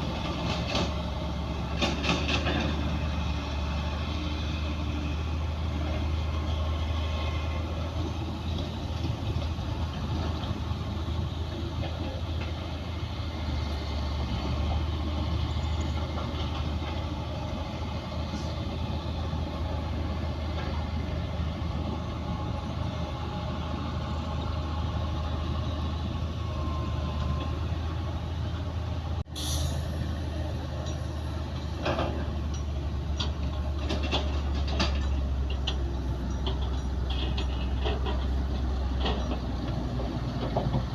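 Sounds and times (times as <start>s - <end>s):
heavy diesel engines droning: 0.0s - 40.9s
metallic clanks: 31.8s - 39.5s.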